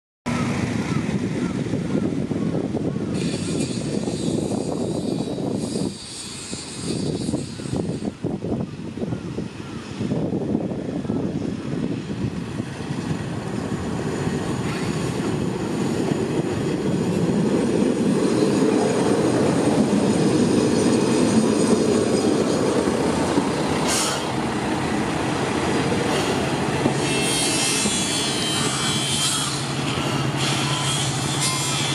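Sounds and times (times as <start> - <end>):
diesel train passing: 0.3 - 31.9
high wheel squeal: 3.1 - 8.2, 26.1 - 31.9.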